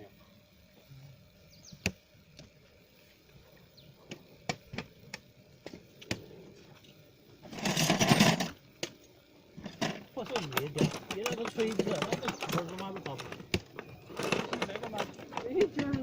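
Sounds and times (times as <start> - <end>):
fishing gear clicks and knocks: 9.6 - 16.0
loud rustling: 9.7 - 16.0.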